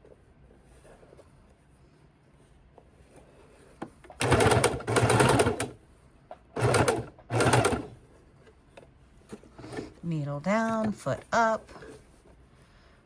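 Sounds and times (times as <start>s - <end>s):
sewing machine stitching: 4.1s - 5.8s, 6.6s - 8.0s.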